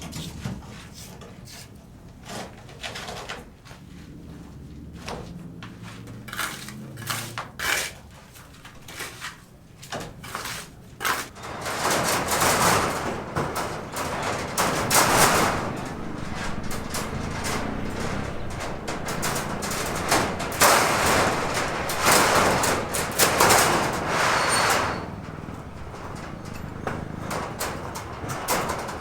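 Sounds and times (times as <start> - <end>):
knocks and clatters: 5.1 - 29.0
rasping scraping noise: 5.8 - 29.0.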